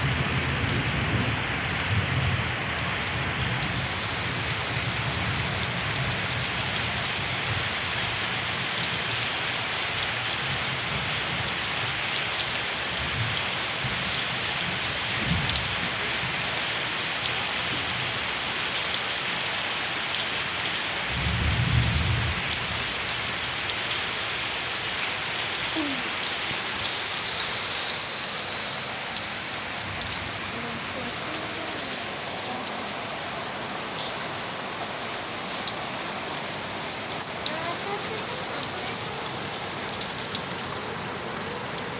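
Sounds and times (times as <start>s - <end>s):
rain pattering: 0.0s - 41.9s.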